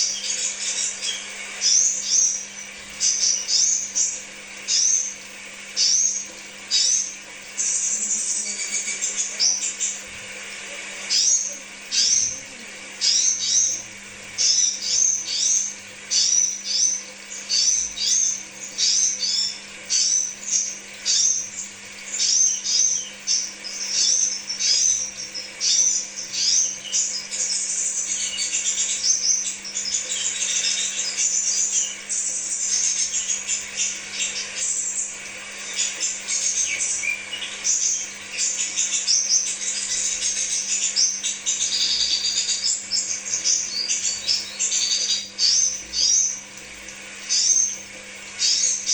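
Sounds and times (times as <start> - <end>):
faint steady hum: 0.0 - 48.9
bird chirping: 35.6 - 46.4.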